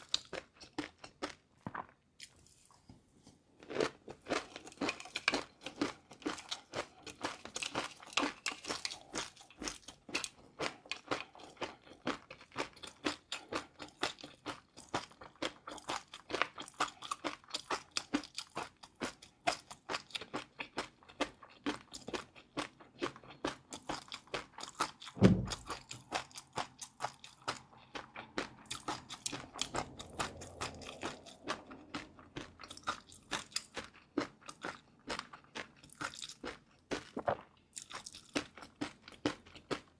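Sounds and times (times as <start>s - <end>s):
crunchy food chewing: 0.0s - 2.9s, 3.5s - 39.9s
low thump: 25.2s - 25.6s.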